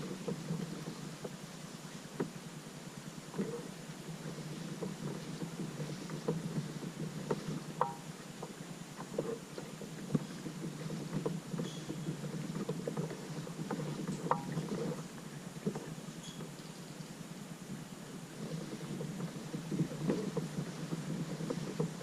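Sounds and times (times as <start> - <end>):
water splashing around kayak: 0.0 - 22.0
small knocks and clicks: 3.3 - 16.8.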